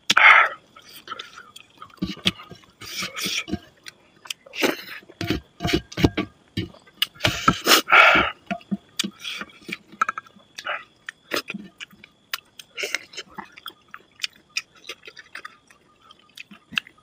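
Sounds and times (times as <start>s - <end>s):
wet open-mouthed chewing: 0.1s - 17.0s
lip smacking: 6.6s - 17.0s.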